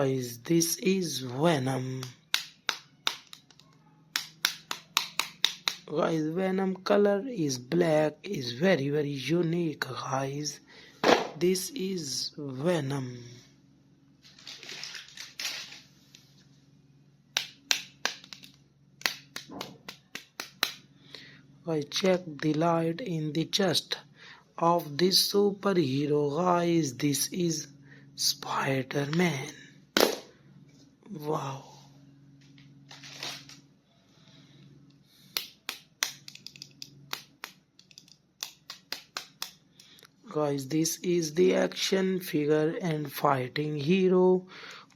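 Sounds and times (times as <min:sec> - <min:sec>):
faint low hum: 0:00.0 - 0:44.9
plastic rustle: 0:14.2 - 0:16.0, 0:32.9 - 0:33.6
plastic toy clicks and taps: 0:35.4 - 0:39.6.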